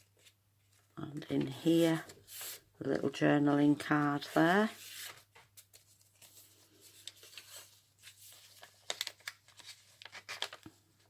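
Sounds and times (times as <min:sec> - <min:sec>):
paper rustling and crinkling: 0:00.0 - 0:02.7, 0:03.9 - 0:11.0.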